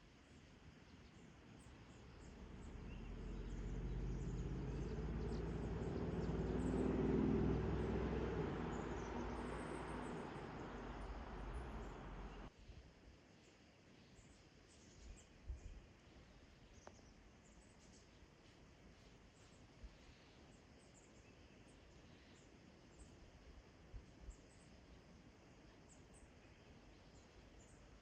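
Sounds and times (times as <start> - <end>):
vehicle engine passing by: 2.1 - 12.5.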